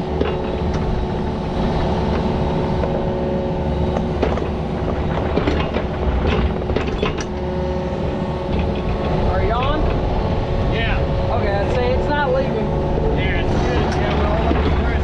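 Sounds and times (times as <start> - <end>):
metallic clanks and knocks: 0.0 - 3.0, 3.9 - 10.1, 12.9 - 15.0
heavy diesel engine running: 0.0 - 15.0.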